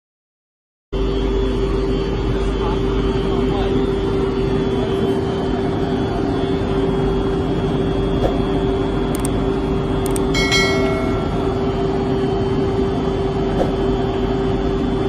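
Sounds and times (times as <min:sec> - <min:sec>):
locomotive machinery hum: 0:01.0 - 0:15.0
high ringing tone: 0:10.0 - 0:13.4.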